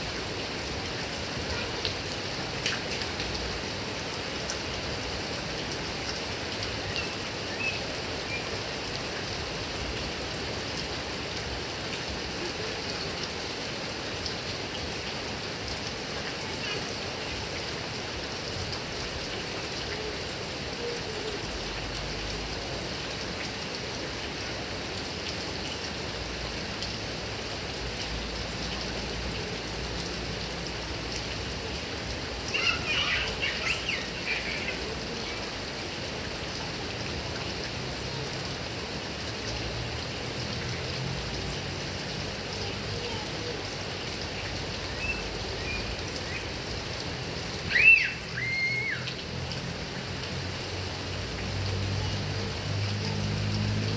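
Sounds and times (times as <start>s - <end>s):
heavy rain on grass and palms: 0.0s - 53.9s.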